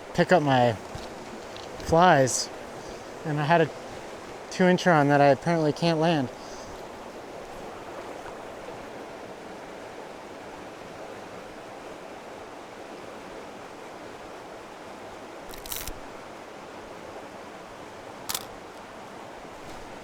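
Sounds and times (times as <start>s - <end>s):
river water flowing: 0.0s - 20.0s.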